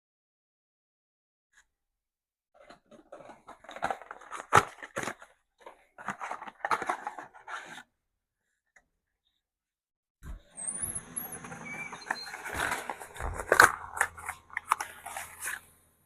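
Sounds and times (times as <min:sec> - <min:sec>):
irregular scrapes and clicks: 0:10.6 - 0:15.8.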